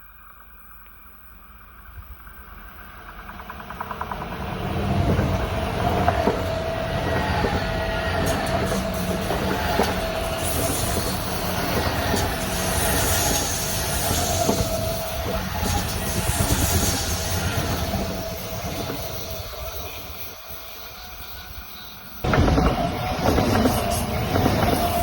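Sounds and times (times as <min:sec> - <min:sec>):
electric train passing: 0:01.2 - 0:25.0
wheel knocks over rail joints: 0:22.3 - 0:25.0.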